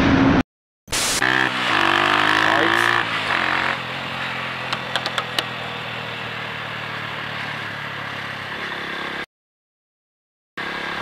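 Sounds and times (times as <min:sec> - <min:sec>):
vehicle engine idling: 0:03.8 - 0:09.2
sharp clicks: 0:04.7 - 0:05.5.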